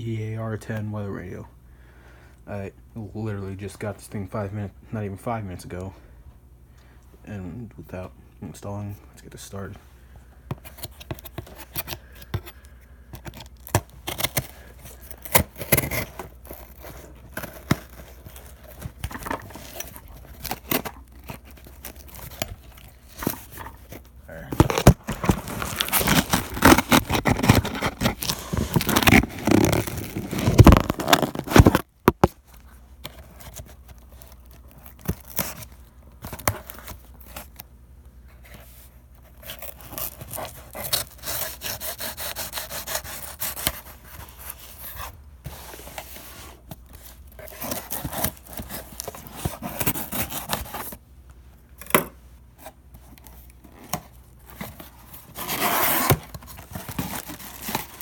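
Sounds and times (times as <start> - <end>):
cardboard box scraping and tearing: 13.3 - 31.9, 39.4 - 51.0, 53.8 - 58.0.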